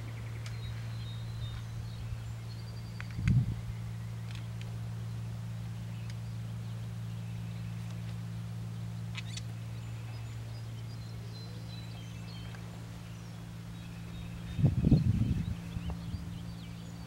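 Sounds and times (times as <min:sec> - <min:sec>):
birds calling and chirping: 0:00.0 - 0:17.0
steady low hum: 0:00.0 - 0:17.0.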